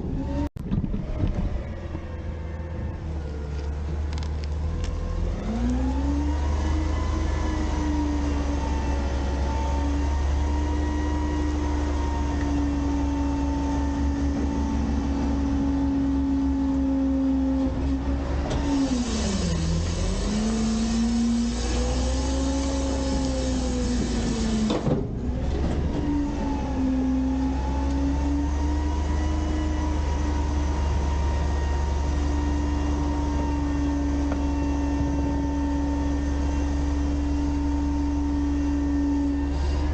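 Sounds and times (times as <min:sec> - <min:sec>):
garbage truck engine revving: 0:01.1 - 0:39.9
hydraulic hiss: 0:18.6 - 0:24.8.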